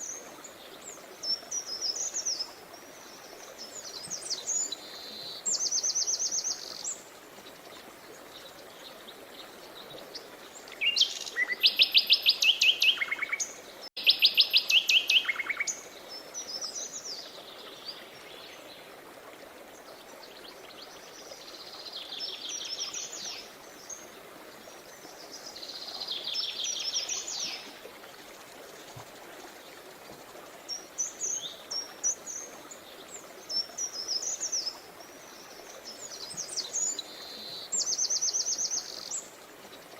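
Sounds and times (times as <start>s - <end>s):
running river water: 0.0s - 39.9s
songbirds singing trills: 7.6s - 18.7s.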